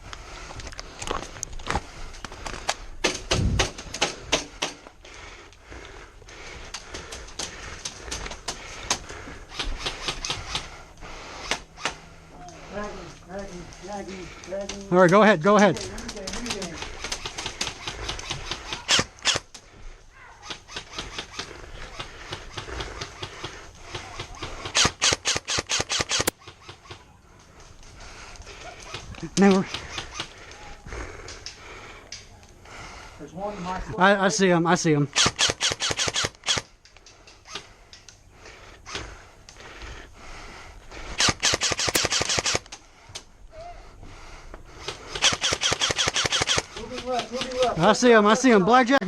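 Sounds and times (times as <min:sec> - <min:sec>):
airsoft gun bursts: 0:16.0 - 0:19.5, 0:20.4 - 0:27.0, 0:35.1 - 0:36.7, 0:41.1 - 0:42.7, 0:44.8 - 0:47.9
airsoft gun shots: 0:41.2 - 0:42.6.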